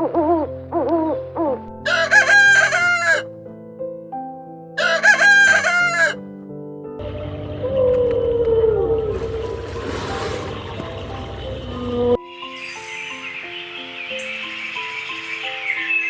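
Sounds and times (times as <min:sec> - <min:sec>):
rooster crowing: 0:01.9 - 0:03.2, 0:04.8 - 0:06.2.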